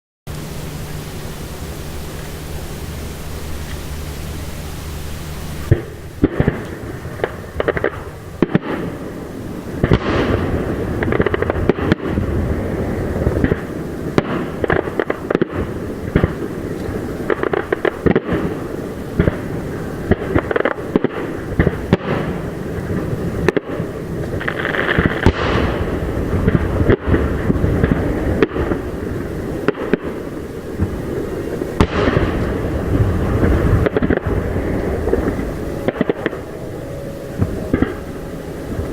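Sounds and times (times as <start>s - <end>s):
fireworks bangs and crackling: 0.3s - 38.9s.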